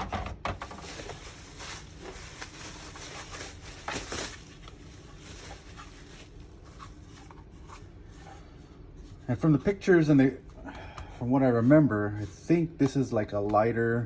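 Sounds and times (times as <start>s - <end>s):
plastic parts rustling and clicking: 0.0s - 7.5s.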